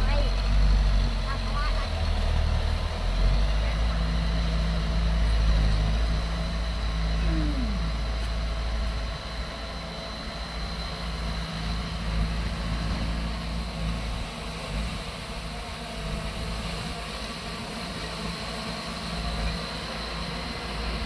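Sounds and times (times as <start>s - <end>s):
heavy machinery engine rumbling: 0.0s - 21.0s
short falling tone: 7.2s - 8.1s.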